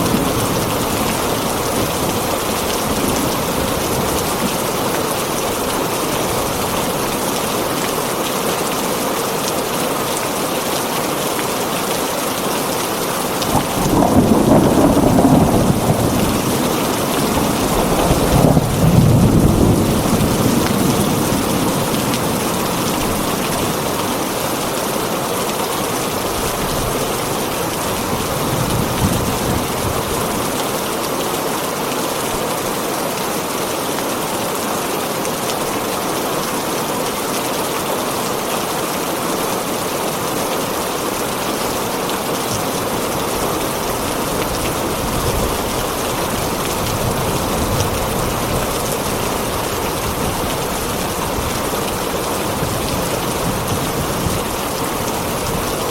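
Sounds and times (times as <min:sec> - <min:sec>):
heavy rain on a tin roof: 0:00.0 - 0:55.9
thunder rumble: 0:13.4 - 0:24.2.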